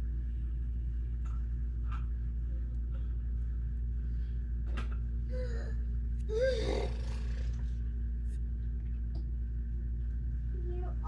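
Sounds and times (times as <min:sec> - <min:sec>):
steady low hum: 0:00.0 - 0:11.0
child vocal sounds: 0:06.3 - 0:07.5.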